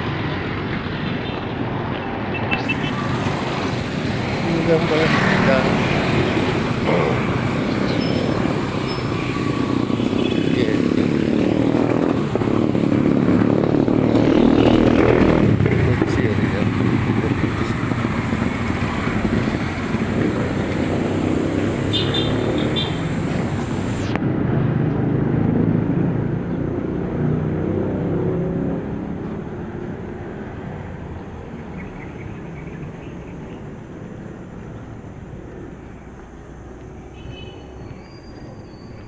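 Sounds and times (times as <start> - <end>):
motor vehicle rumble: 0.0 - 39.0.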